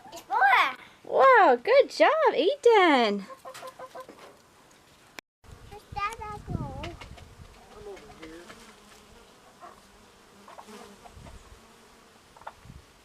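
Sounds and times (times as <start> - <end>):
faint insect buzzing: 5.5 - 13.0.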